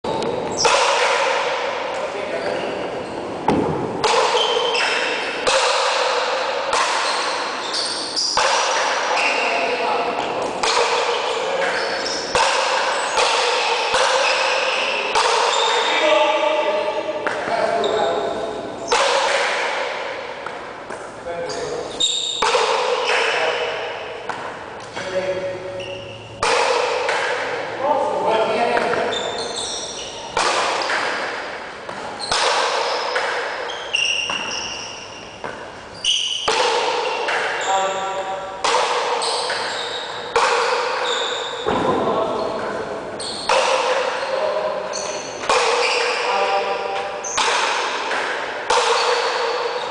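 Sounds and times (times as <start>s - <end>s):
ball struck by wooden paddles: 0.1s - 17.8s, 18.5s - 27.8s, 28.5s - 49.9s
ball rebounding off wall: 0.2s - 2.0s, 3.4s - 15.9s, 30.3s - 42.7s, 43.3s - 49.9s
short high squeaks: 7.0s - 8.4s, 11.0s - 16.1s, 21.4s - 23.4s, 25.7s - 26.4s, 29.1s - 30.4s, 32.2s - 35.2s, 35.9s - 38.0s, 39.2s - 40.3s, 41.0s - 41.7s, 43.2s - 43.6s, 44.2s - 46.4s.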